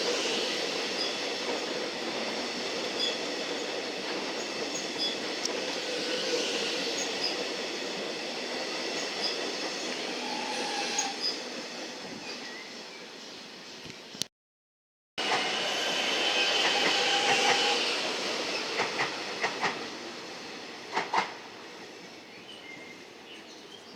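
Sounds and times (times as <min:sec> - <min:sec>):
electric train passing on rails: 0:00.0 - 0:14.3, 0:15.2 - 0:23.9.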